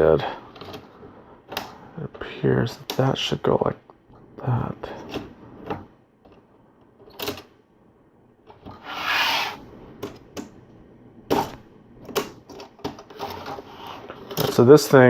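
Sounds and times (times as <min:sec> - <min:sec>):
plastic scraping on plastic: 0:08.8 - 0:09.6
plastic parts clicking and knocking: 0:11.3 - 0:13.6.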